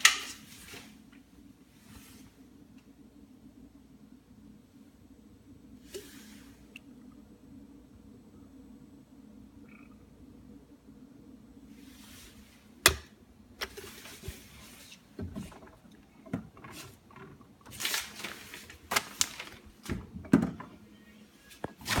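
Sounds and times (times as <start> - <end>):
low steady hum: 0.0 - 22.0
short rustling: 16.6 - 20.0.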